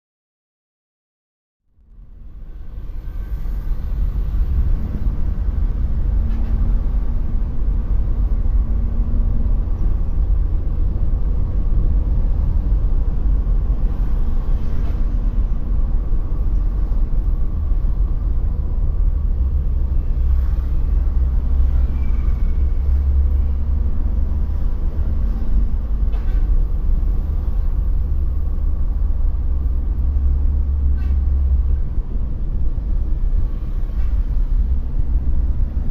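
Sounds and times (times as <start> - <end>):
bus engine rumble: 1.6 - 35.9.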